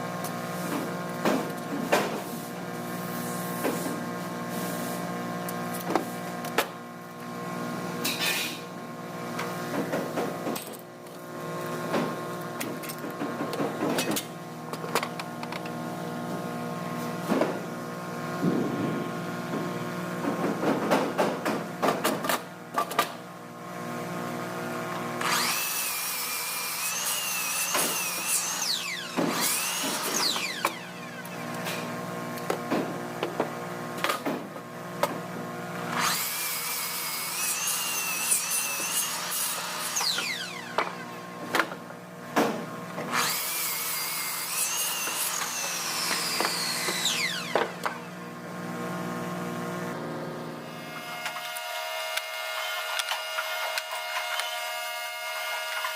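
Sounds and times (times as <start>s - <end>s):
power drill whining: 25.2s - 31.6s, 35.9s - 36.5s, 37.5s - 41.0s, 44.7s - 47.6s.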